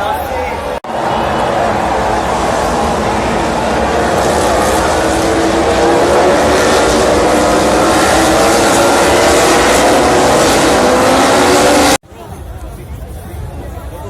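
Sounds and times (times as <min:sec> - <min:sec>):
vehicle engine pulling: 0:00.8 - 0:12.0.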